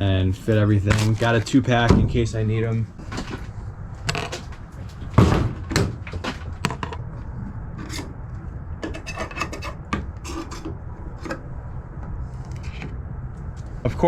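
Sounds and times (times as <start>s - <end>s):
handling scrapes and clicks: 0.8s - 1.6s, 7.7s - 11.4s, 12.3s - 13.8s.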